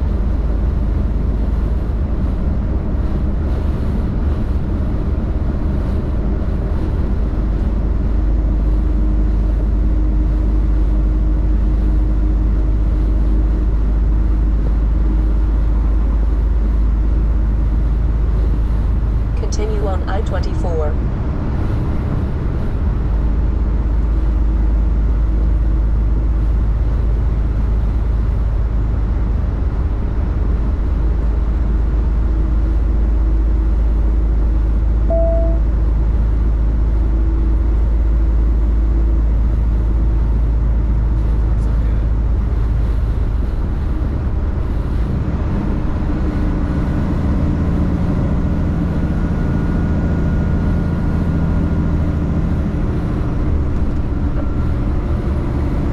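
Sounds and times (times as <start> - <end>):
road noise: 0.0 - 55.9
truck diesel engine rumble: 0.0 - 55.9
brief tone: 35.1 - 35.7.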